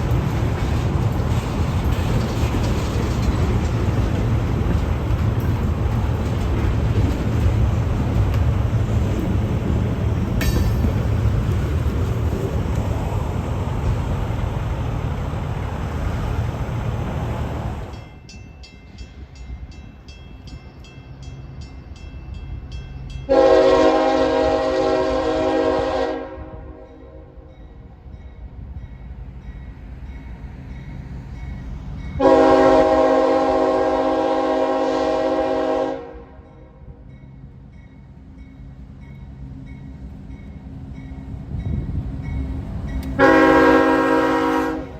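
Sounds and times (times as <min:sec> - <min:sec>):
freight train rumbling past: 0:00.0 - 0:44.9
locomotive air horn blasts: 0:23.3 - 0:27.4, 0:32.2 - 0:36.4, 0:43.2 - 0:44.9.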